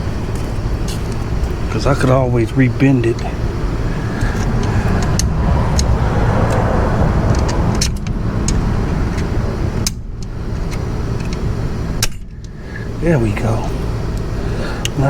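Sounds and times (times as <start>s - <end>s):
low rumble: 3.0s - 10.6s.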